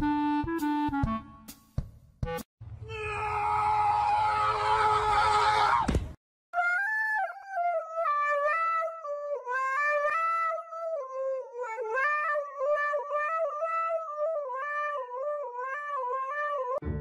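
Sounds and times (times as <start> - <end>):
dog howling into a microphone: 2.9 - 5.9, 6.6 - 16.8.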